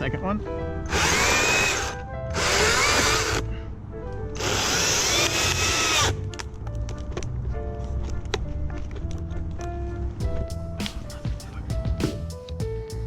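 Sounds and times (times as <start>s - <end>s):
chainsaw whining: 0.9s - 3.5s, 4.4s - 6.2s.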